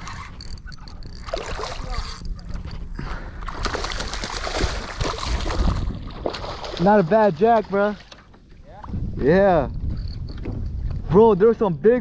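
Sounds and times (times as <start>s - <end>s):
fish splashing in water: 3.5s - 8.3s.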